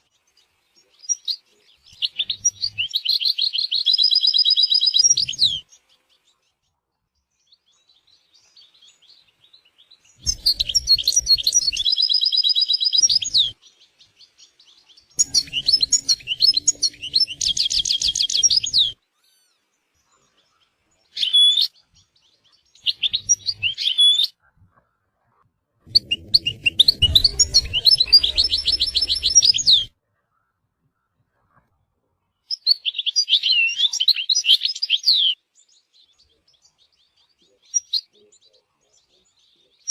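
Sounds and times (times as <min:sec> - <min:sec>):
goldfinch twittering song: 0:00.0 - 0:06.6, 0:07.3 - 0:24.3, 0:25.9 - 0:29.9.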